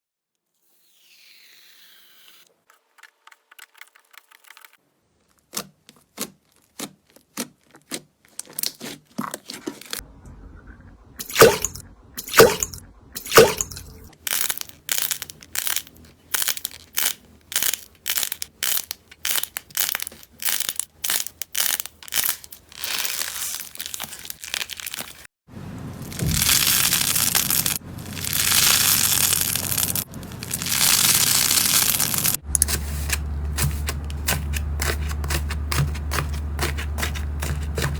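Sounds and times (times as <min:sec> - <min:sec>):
slime popping and crackling: 0:11.2 - 0:25.2, 0:26.0 - 0:32.8.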